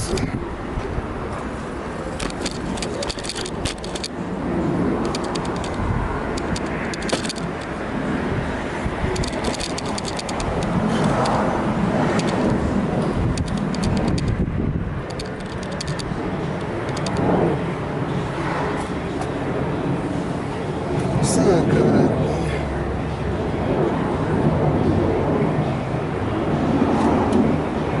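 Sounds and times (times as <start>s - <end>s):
steady low rumble: 0.0s - 28.0s
metal tools clinking and rattling: 2.2s - 4.2s, 5.0s - 5.8s, 6.4s - 7.7s, 9.1s - 11.4s, 15.1s - 16.1s.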